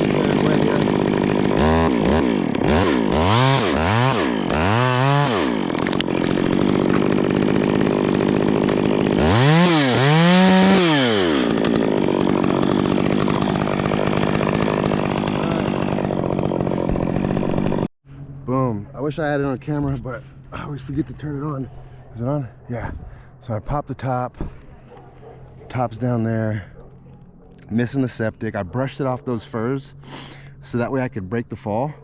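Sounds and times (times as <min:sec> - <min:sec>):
chainsaw revving and idling: 0:00.0 - 0:17.9.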